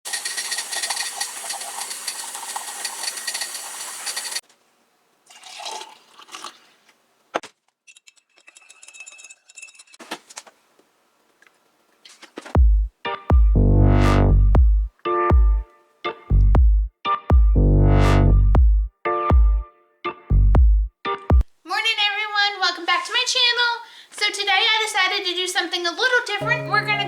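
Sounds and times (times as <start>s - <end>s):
water pouring: 0.1s - 4.4s, 5.3s - 7.0s.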